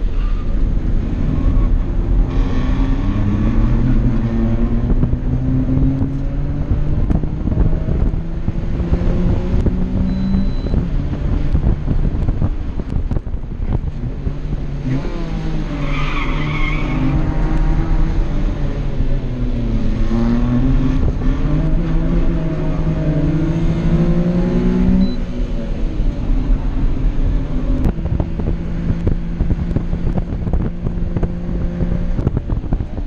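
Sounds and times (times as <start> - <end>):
small car engine accelerating: 14.2 - 32.9.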